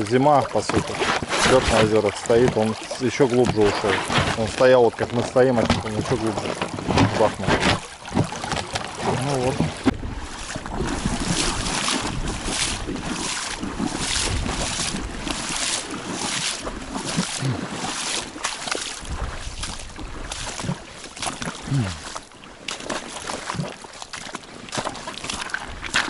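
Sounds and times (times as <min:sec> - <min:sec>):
river water splashing: 0:00.0 - 0:26.0
wind rumbling on microphone: 0:05.6 - 0:17.6, 0:18.2 - 0:20.9, 0:25.4 - 0:26.0.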